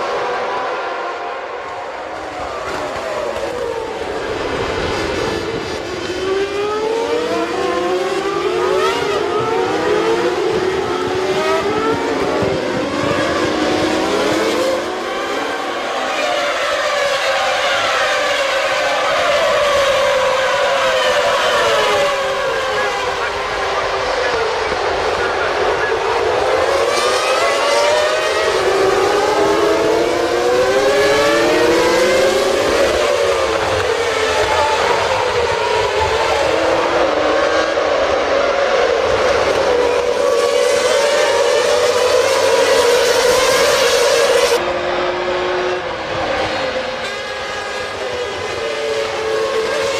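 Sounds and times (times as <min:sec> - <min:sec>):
racing car engines revving: 0:00.0 - 0:49.9.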